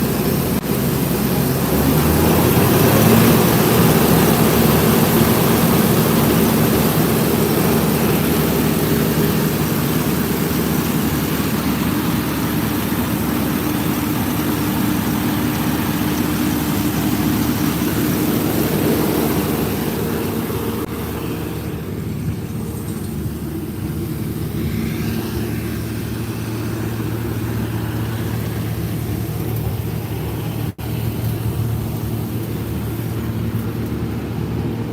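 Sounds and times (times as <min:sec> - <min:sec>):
combine harvester engine drone: 0:00.0 - 0:34.9.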